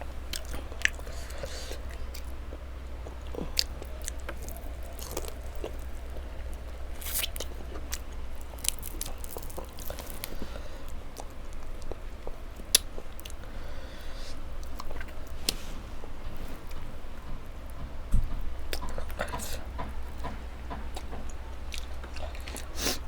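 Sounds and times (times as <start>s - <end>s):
soft wet squishes: 0.0s - 16.9s
person chewing food: 0.0s - 17.3s, 18.7s - 23.0s.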